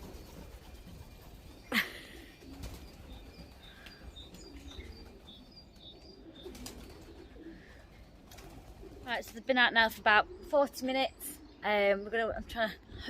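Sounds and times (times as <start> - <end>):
pigeon wings clattering: 0.0 - 5.2, 6.4 - 7.2, 8.2 - 9.0.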